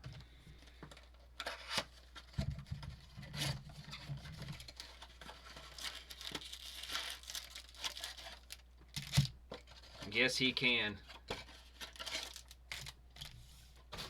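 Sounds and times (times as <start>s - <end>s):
wrappers crinkling and tearing: 4.5s - 9.3s, 11.5s - 13.3s.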